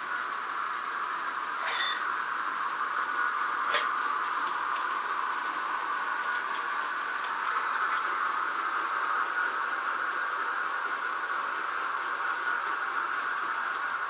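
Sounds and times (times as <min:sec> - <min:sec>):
model train motors whirring: 0:00.0 - 0:14.0.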